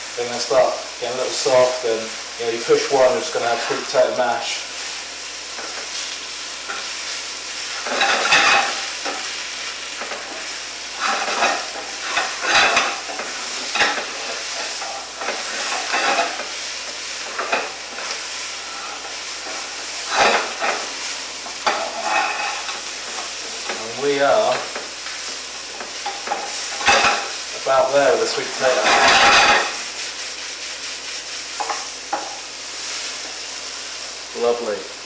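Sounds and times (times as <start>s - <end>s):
vegetables sizzling in a pan: 0.0s - 35.0s
utensil stirring and scraping: 10.0s - 24.9s.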